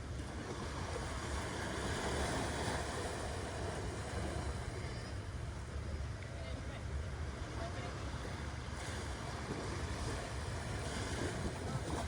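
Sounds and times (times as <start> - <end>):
ocean surf on beach: 0.0 - 12.0.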